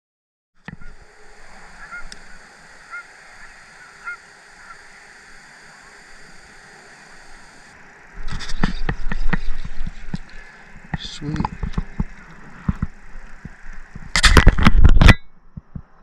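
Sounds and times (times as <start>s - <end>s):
steady outdoor hiss: 0.6s - 16.0s
geese honking: 0.7s - 14.0s.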